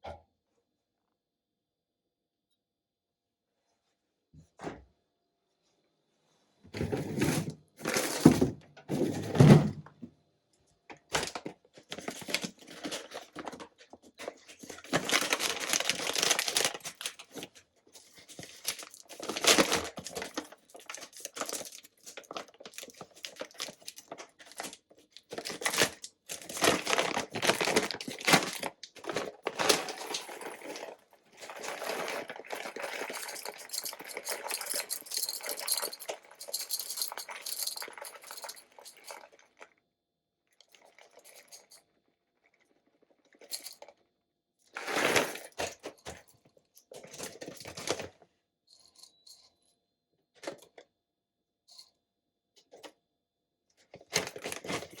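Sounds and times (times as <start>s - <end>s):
rustling and crinkling: 11.2s - 39.4s.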